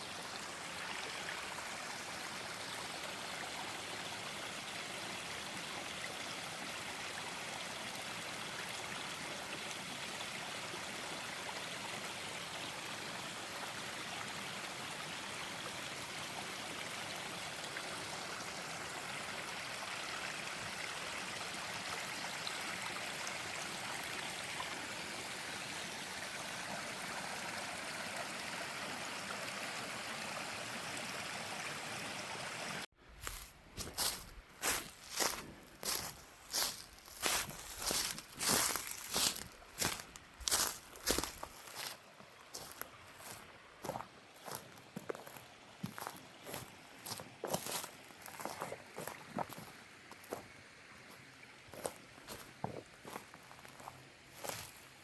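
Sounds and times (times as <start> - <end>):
stream water running: 0.0 - 55.0
footsteps: 33.1 - 49.7.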